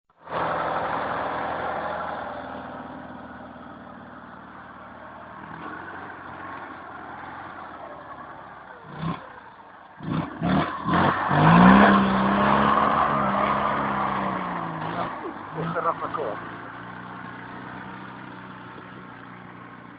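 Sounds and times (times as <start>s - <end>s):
tractor engine running: 0.1s - 19.9s.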